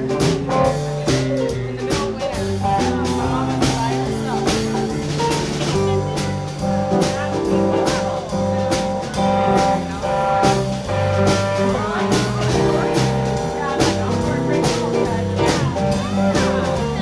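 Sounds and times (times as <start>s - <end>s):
drum kit beat: 0.0s - 17.0s
held keyboard notes: 0.0s - 17.0s
live blues band playing: 0.0s - 17.0s.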